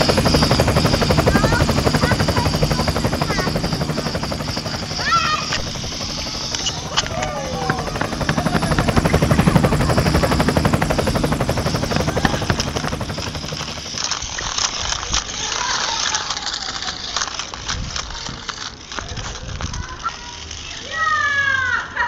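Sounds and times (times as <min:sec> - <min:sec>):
outdoor noise: 0:00.0 - 0:22.0
toy helicopter motor humming: 0:00.0 - 0:22.0.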